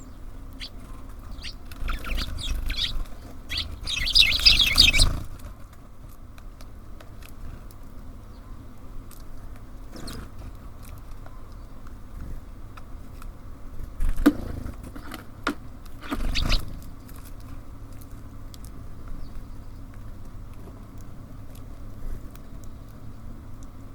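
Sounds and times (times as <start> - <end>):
birds tapping at feeder: 0.0 - 5.4, 15.9 - 16.9.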